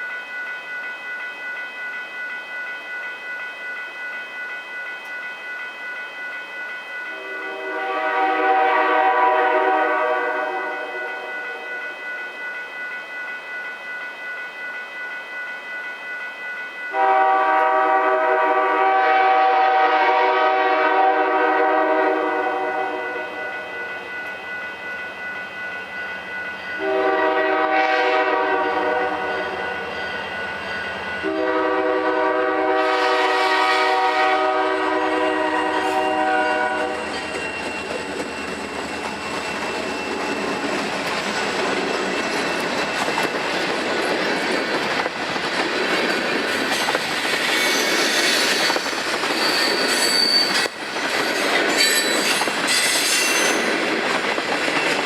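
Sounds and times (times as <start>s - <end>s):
train wheels on rails: 0.0s - 55.0s
locomotive horn blasts: 7.1s - 11.2s, 16.9s - 23.4s, 26.8s - 29.4s, 31.2s - 37.1s
wheel squeal: 47.6s - 50.8s.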